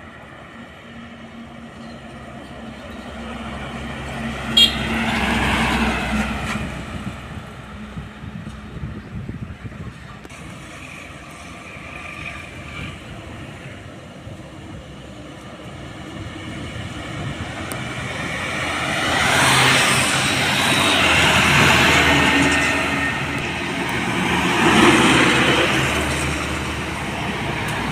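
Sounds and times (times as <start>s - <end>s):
truck driving past: 1.3s - 8.4s, 14.8s - 27.9s.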